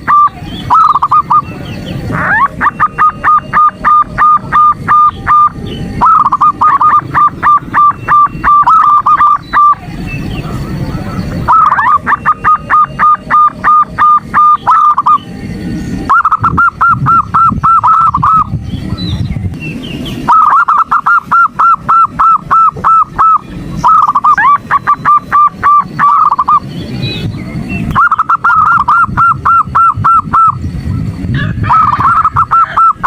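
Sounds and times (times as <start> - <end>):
dove cooing: 0.0 - 19.1, 20.1 - 26.7, 27.9 - 33.0.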